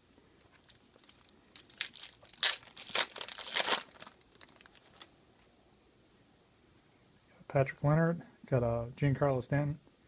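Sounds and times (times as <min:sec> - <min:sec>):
foil wrapper crinkling and tearing: 0:00.4 - 0:05.1.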